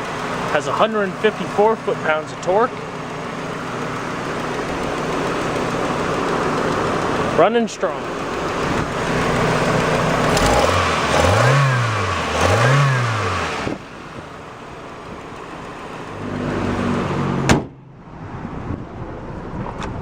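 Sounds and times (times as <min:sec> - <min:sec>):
car engine revving: 0:00.0 - 0:19.6
sharp thump: 0:17.4 - 0:17.8.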